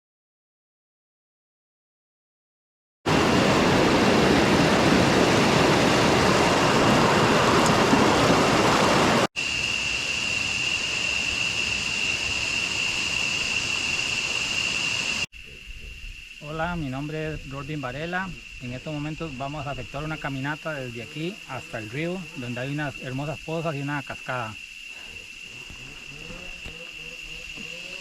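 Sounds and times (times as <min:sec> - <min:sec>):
waterfall roar: 0:03.1 - 0:15.2
steady high whine: 0:25.0 - 0:28.0.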